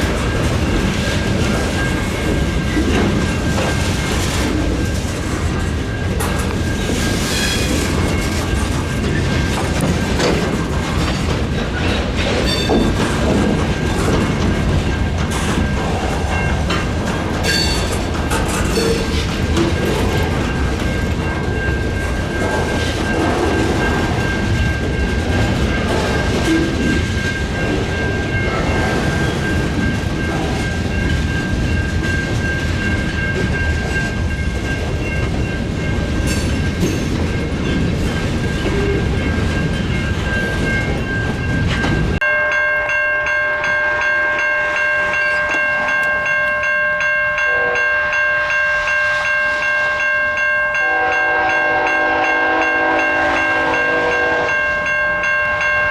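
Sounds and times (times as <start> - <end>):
freight train rumbling past: 0.0 - 55.9
locomotive air horn: 47.5 - 47.9, 50.8 - 54.7.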